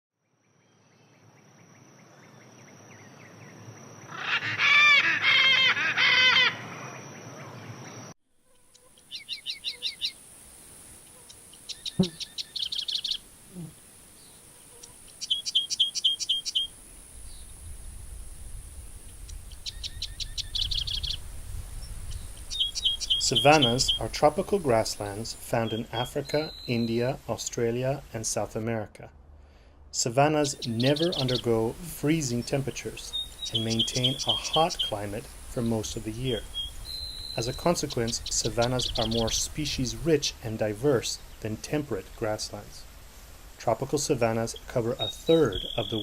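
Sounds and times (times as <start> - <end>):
harsh bird calls: 4.0 - 8.1, 8.7 - 10.2, 11.1 - 17.5, 19.2 - 21.2, 22.1 - 28.0, 30.0 - 41.5, 43.9 - 46.0
bird trilling: 4.1 - 6.9, 8.7 - 10.2, 11.1 - 13.7, 14.7 - 16.8, 22.1 - 26.9, 30.4 - 31.6, 32.3 - 35.2, 36.2 - 39.4, 44.5 - 46.0
steady high hiss: 6.7 - 29.1, 29.8 - 46.0.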